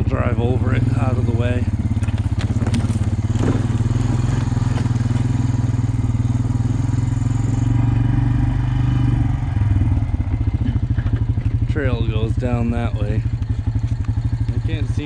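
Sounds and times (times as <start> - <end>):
atv engine running under load: 0.0 - 15.0
sharp cracks: 1.9 - 5.7.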